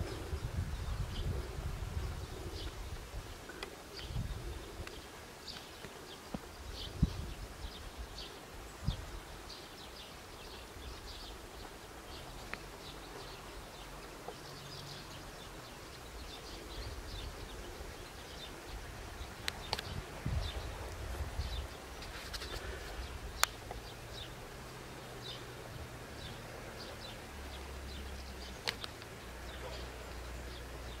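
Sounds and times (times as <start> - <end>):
small birds chirping: 0.0 - 31.0
sharp clicks: 28.6 - 29.1.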